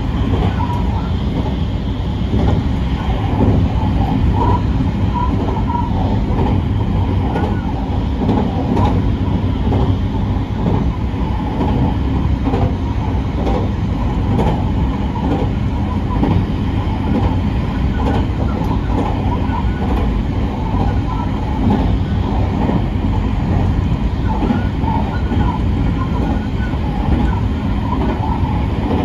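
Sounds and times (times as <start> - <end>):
train wheels rumbling: 0.0 - 29.0
faint rail clicks: 0.2 - 1.6, 2.3 - 9.0, 10.6 - 12.8, 13.4 - 14.6, 17.0 - 22.9.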